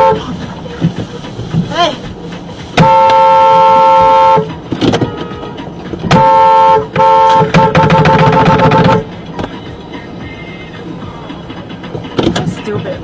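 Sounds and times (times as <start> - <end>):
vehicle horn honking: 0.0 - 0.2, 2.8 - 9.1.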